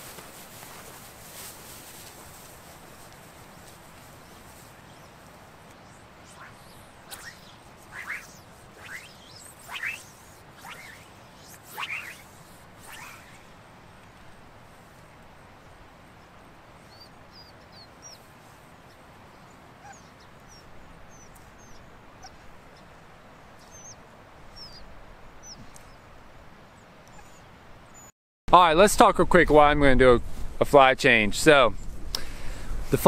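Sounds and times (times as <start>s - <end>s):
faint outdoor hiss: 0.0s - 33.0s
small birds chirping: 3.6s - 14.1s, 15.5s - 26.1s, 26.7s - 28.1s
brief swish: 6.3s - 13.4s.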